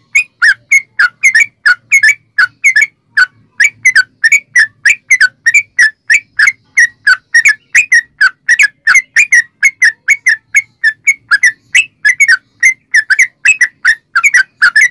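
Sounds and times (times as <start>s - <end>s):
bird singing whistled chirps: 0.0s - 14.9s.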